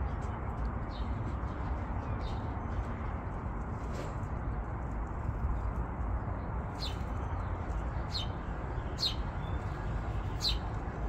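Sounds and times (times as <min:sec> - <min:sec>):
small bird chirping: 0:06.7 - 0:10.8.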